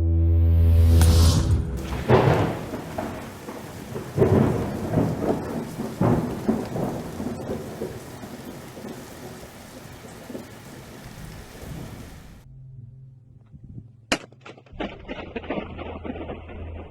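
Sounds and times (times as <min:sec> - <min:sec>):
thunder crack and rumble: 0:01.6 - 0:12.4, 0:14.8 - 0:16.9
steady rain: 0:01.8 - 0:12.4.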